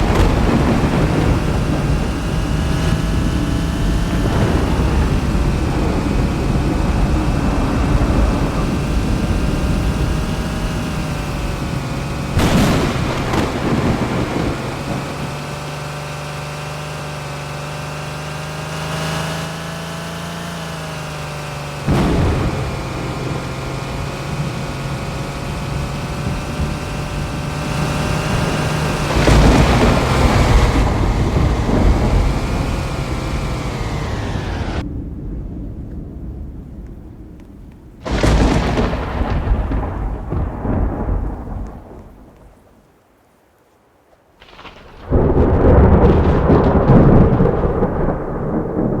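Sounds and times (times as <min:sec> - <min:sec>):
droning hum: 0:00.0 - 0:34.8
thunder cracking and rumbling: 0:00.0 - 0:42.6, 0:44.4 - 0:49.0.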